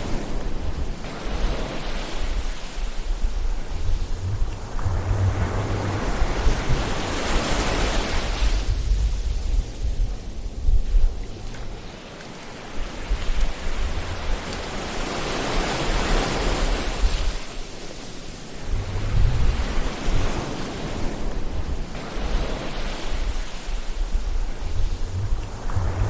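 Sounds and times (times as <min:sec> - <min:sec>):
ocean waves washing in: 0:00.0 - 0:26.0
low rumble: 0:02.8 - 0:11.8, 0:18.6 - 0:20.2, 0:23.2 - 0:26.0.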